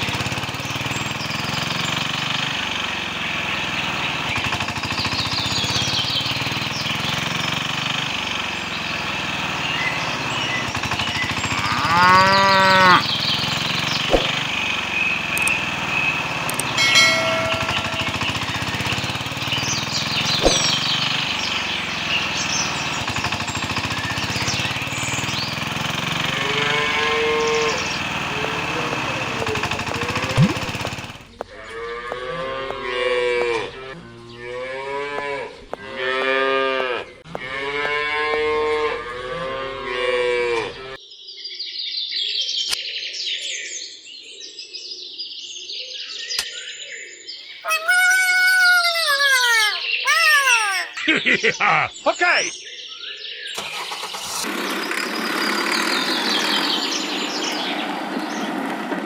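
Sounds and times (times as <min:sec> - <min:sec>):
cattle mooing: 0:11.6 - 0:13.1
high chirps: 0:16.6 - 0:18.4, 0:20.3 - 0:21.0, 0:47.6 - 0:51.0.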